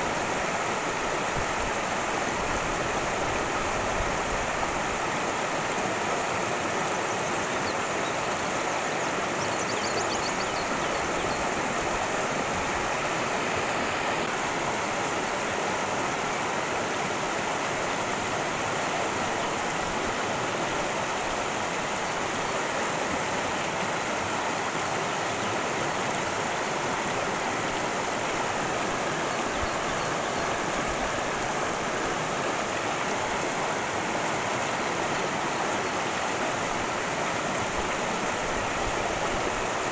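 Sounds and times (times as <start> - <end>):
creek water rushing: 0.0 - 39.9.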